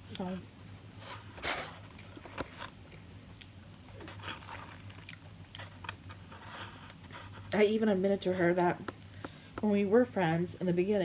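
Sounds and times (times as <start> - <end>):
person chewing fried chicken: 2.8 - 7.2.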